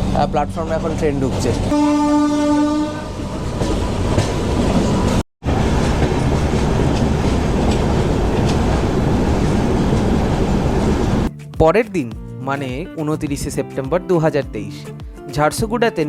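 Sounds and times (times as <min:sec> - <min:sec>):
train coach rumbling: 0:00.0 - 0:11.3.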